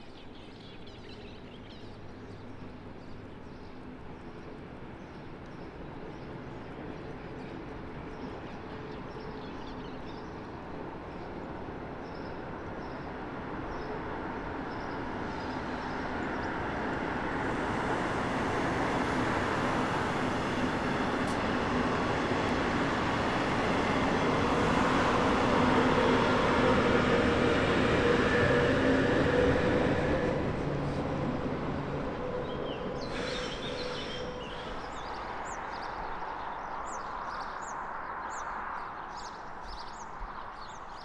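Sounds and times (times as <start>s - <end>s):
train wheels rumbling on rails: 10.5s - 36.3s
electric locomotive hum: 11.6s - 35.5s.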